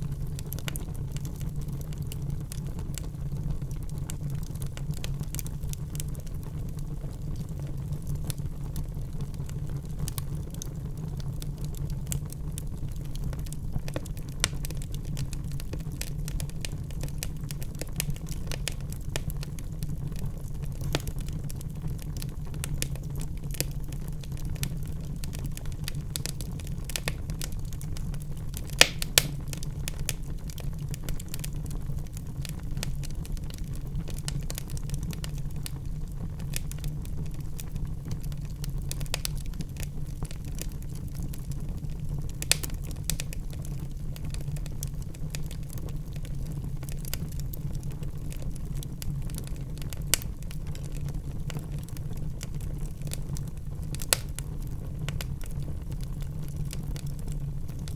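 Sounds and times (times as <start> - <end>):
wood fire crackling: 0.0 - 57.9
fire pops: 9.2 - 47.8, 48.4 - 51.9, 53.9 - 57.9.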